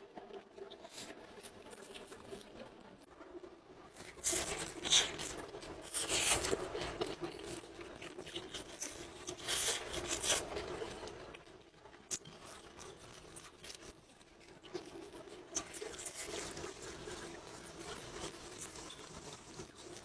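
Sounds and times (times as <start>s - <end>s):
biting and chewing: 4.0s - 11.4s.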